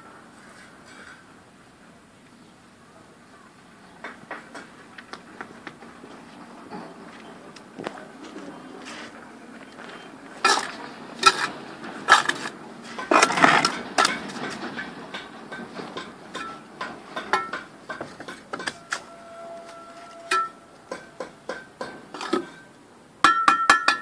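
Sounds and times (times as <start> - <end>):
metal tool knocking on brick: 23.3 - 24.0.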